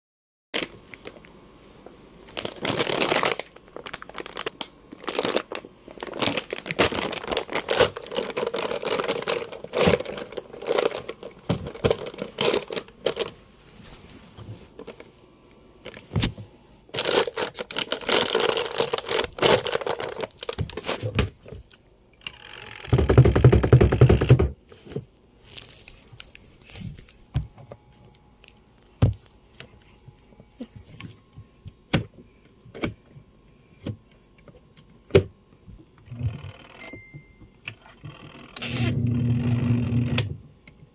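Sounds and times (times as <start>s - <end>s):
detergent sack crinkling and tearing: 2.3s - 13.4s, 16.9s - 21.2s, 25.4s - 27.2s.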